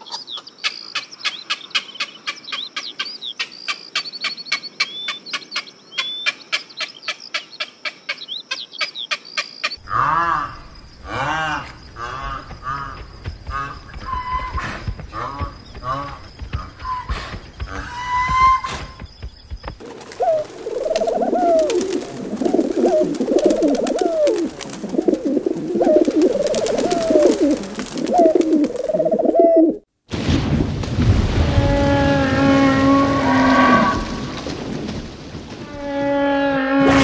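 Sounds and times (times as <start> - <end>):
pigeons cooing: 19.9 - 29.8.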